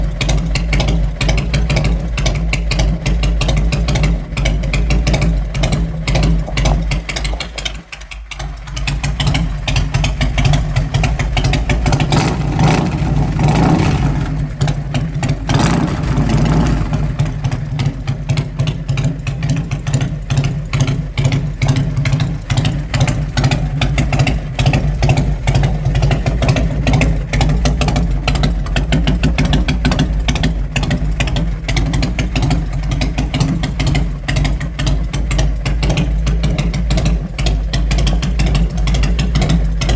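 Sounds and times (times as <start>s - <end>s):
engine running and revving: 9.0s - 39.9s.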